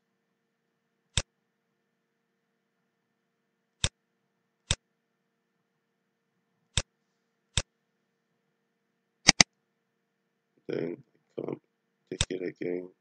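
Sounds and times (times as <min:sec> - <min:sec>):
faint steady hum: 0:00.0 - 0:13.0
computer mouse clicks: 0:09.3 - 0:09.5.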